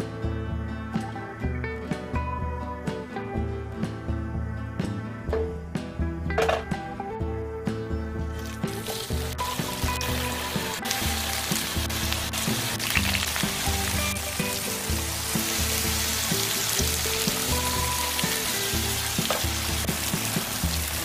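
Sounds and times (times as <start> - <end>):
tofu sizzling in a frying pan: 8.4 - 21.0.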